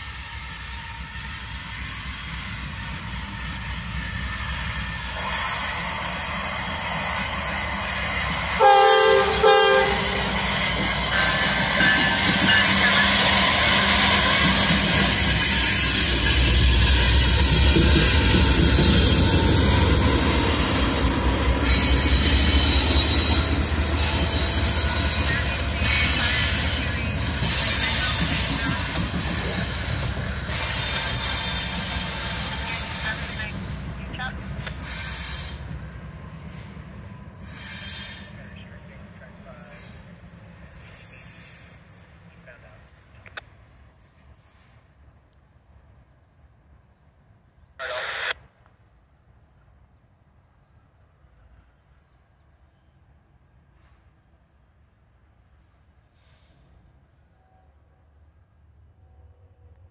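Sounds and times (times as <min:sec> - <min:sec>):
wheel flange squeal: 0:00.1 - 0:08.6, 0:21.7 - 0:33.0, 0:37.4 - 0:38.5
locomotive horn blasts: 0:08.6 - 0:10.4.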